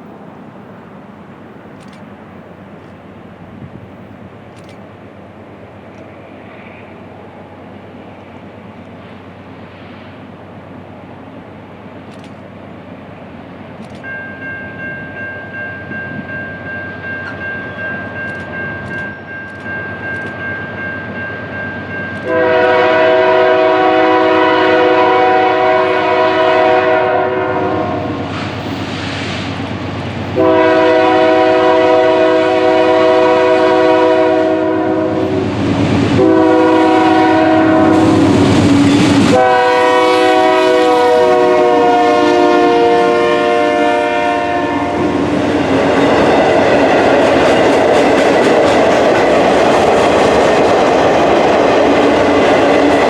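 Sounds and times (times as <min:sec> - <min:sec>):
train rumbling: 0:00.0 - 0:53.0
locomotive horn blasts: 0:22.2 - 0:28.3, 0:30.4 - 0:35.4, 0:36.2 - 0:38.4, 0:39.3 - 0:45.3.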